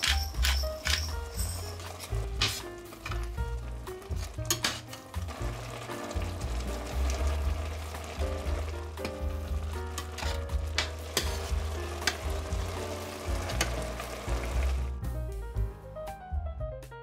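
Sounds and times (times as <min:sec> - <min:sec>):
meat sizzling in a pot: 0:00.0 - 0:15.0
background music: 0:00.0 - 0:17.0
spatula scraping a pot: 0:10.0 - 0:12.2.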